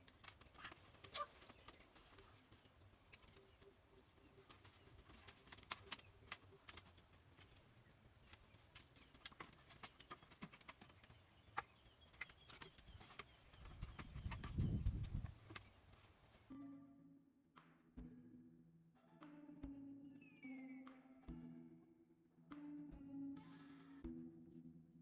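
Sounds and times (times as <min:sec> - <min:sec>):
faint clicks and taps: 0:00.0 - 0:16.5.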